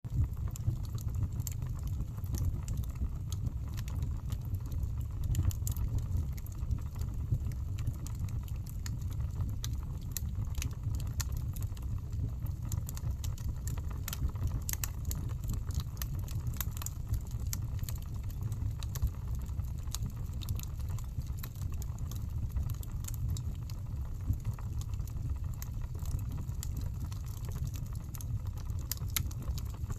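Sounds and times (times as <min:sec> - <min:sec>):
logs crackling and popping: 0:00.1 - 0:29.9
low rumble of flames: 0:00.1 - 0:29.9.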